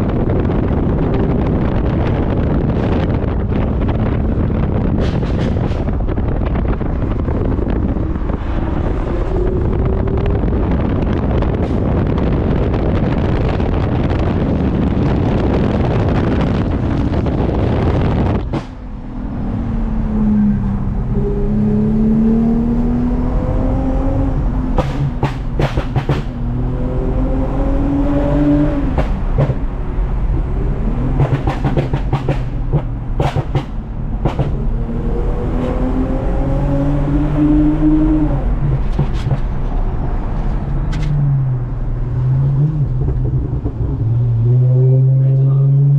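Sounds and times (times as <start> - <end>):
heavy wind and road noise: 0.0 - 45.9
car engine revving through gears: 14.5 - 45.9.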